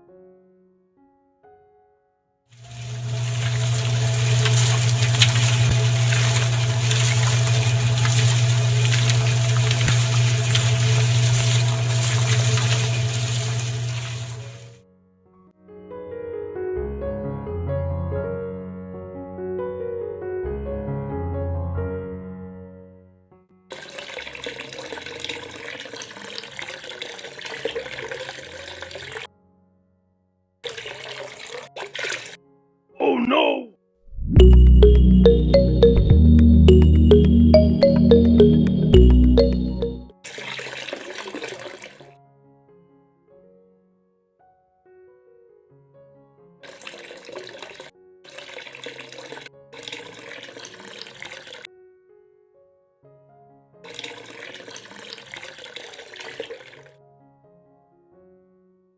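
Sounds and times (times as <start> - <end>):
water running from small pump: 2.7 - 14.6, 23.7 - 29.3, 30.6 - 32.4, 40.3 - 42.1, 46.6 - 51.7, 53.9 - 56.9
background music: 34.1 - 40.1.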